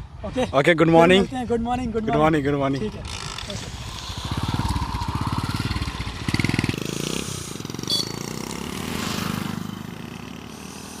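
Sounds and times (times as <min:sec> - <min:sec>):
motorcycle engine pulling away: 0:03.0 - 0:11.0
high beep: 0:07.9 - 0:08.2.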